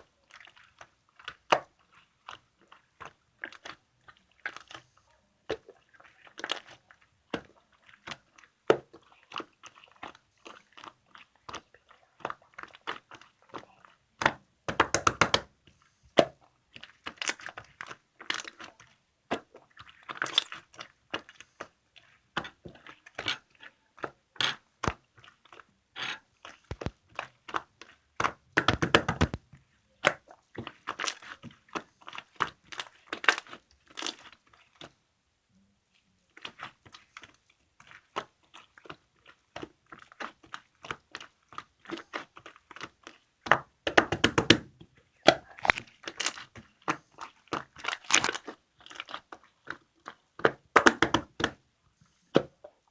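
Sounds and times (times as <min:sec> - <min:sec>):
hands squishing slime: 0:00.0 - 0:35.0, 0:35.9 - 0:51.6
trapped air popping in clicks: 0:28.6 - 0:29.4, 0:50.8 - 0:51.5.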